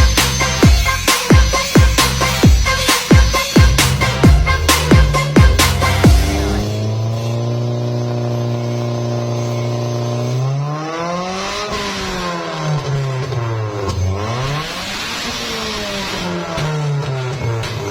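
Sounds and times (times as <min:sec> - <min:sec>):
engine idling and revving: 0:00.0 - 0:17.9.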